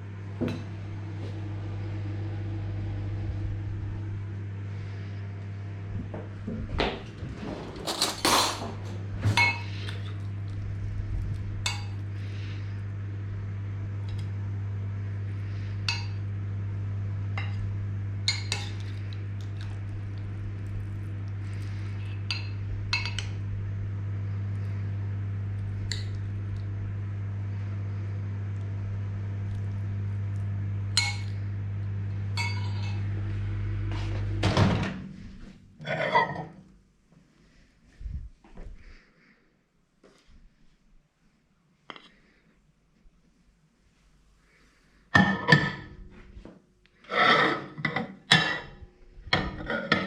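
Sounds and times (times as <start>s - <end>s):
microwave oven humming: 0.0s - 39.0s, 43.6s - 50.0s
dishes and cutlery clinking: 7.8s - 10.1s, 31.0s - 31.4s, 32.4s - 33.1s.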